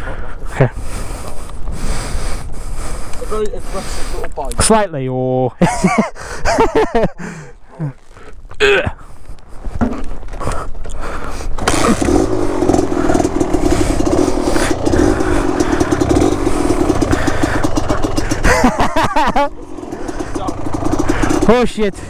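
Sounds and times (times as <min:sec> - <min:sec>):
two-stroke dirt bike engine: 0:00.0 - 0:04.7, 0:11.1 - 0:22.0.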